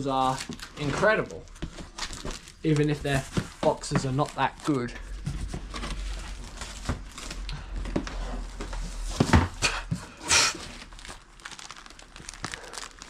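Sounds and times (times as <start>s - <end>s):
tape tearing rip: 10.2s - 11.2s.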